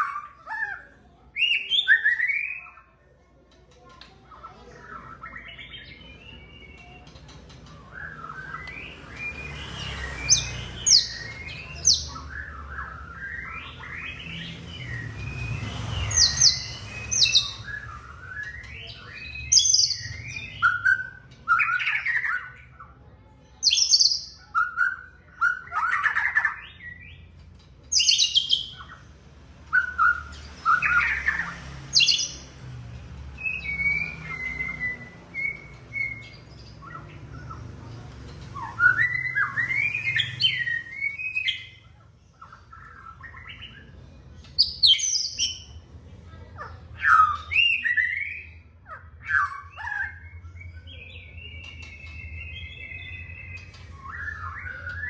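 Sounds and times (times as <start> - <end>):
bird singing whistled phrases: 1.4 - 2.8, 7.8 - 22.6, 23.6 - 27.2, 33.4 - 37.6, 38.6 - 41.8, 47.0 - 48.6, 49.2 - 55.0.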